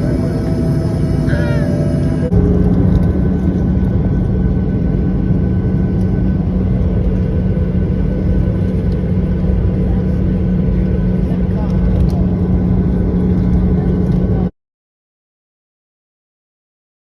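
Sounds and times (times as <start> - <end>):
constant low hum: 0.0 - 14.5
jet engines in aircraft cabin: 0.0 - 14.5.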